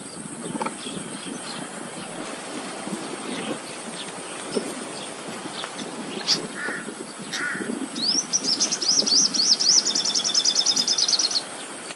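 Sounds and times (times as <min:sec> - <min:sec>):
high bird chirps trilling: 0:03.3 - 0:11.5
harsh caw-like bird calls: 0:06.5 - 0:07.8.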